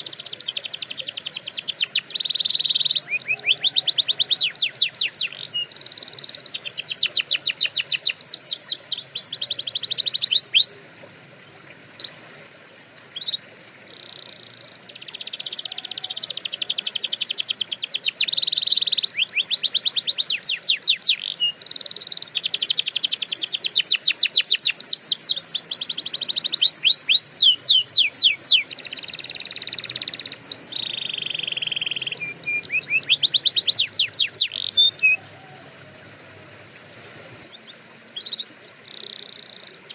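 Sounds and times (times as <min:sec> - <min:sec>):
canary singing trills: 0:00.0 - 0:10.8, 0:13.0 - 0:36.1, 0:37.5 - 0:39.9.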